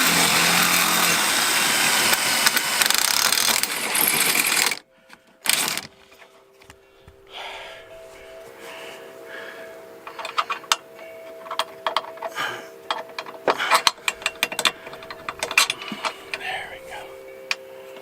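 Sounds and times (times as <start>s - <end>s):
faint steady hum: 4.8s - 18.0s
metal hand tools clanking: 10.0s - 18.0s.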